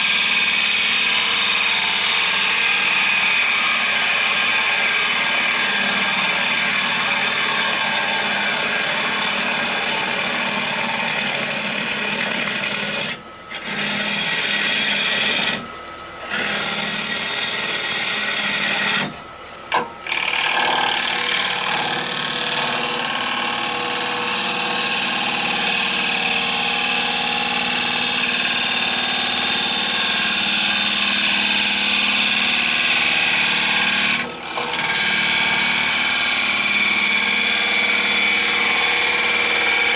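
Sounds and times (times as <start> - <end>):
lathe motor hum: 0.1 - 11.6, 20.0 - 39.9.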